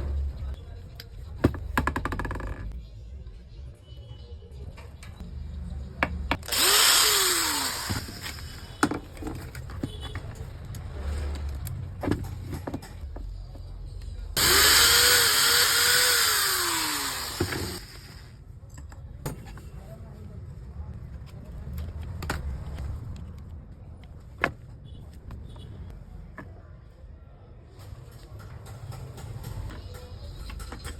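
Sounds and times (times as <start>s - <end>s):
angle grinder spinning: 6.4s - 8.7s, 14.4s - 18.3s.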